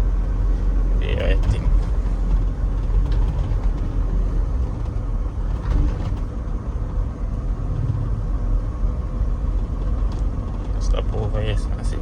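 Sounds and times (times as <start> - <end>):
diesel truck engine running: 0.0 - 12.0
low road rumble: 0.0 - 12.0.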